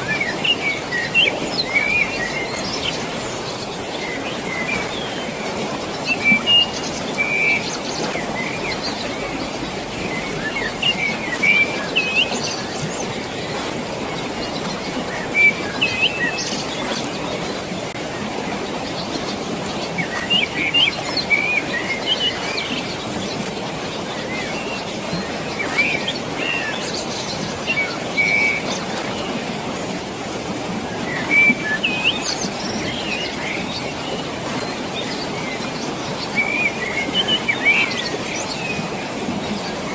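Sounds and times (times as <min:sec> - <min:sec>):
flowing water rushing: 0:00.0 - 0:39.9
birds chirping and whistling: 0:00.1 - 0:13.4, 0:14.0 - 0:16.8, 0:36.2 - 0:38.9.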